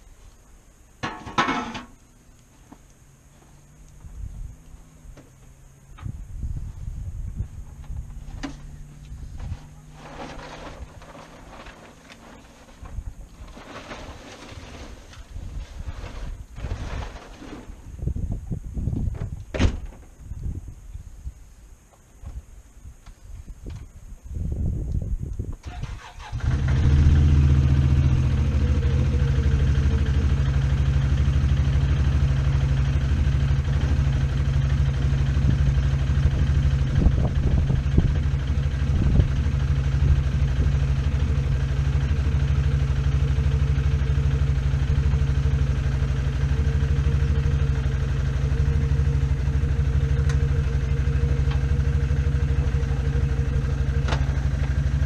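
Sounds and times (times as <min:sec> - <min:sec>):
atv engine starting and idling: 0:25.6 - 0:55.0.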